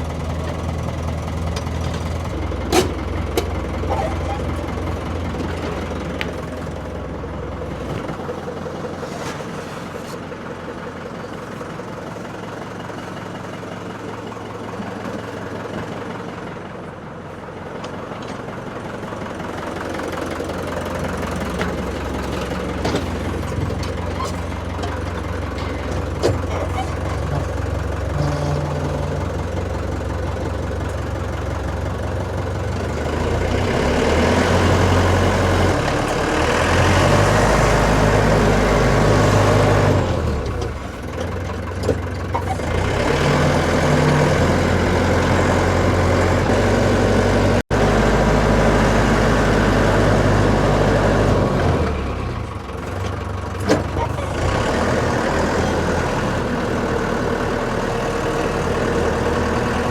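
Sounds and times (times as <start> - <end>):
low motor hum: 19.8 - 33.6.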